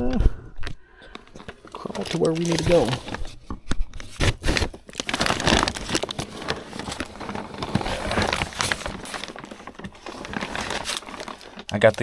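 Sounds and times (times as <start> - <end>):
person crawling through crawl space: 4.1 - 11.4.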